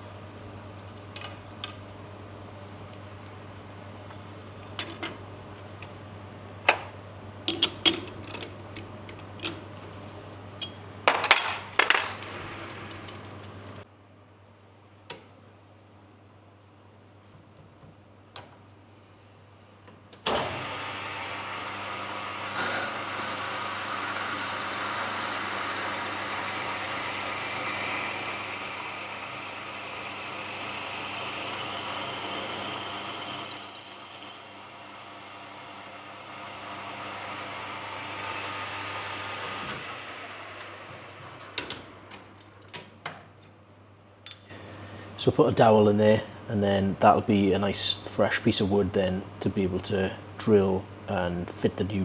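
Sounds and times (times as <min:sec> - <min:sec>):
lathe running and cutting: 0:23.0 - 0:38.4
faint high whistle: 0:27.1 - 0:38.4
sharp clicks: 0:27.3 - 0:38.4.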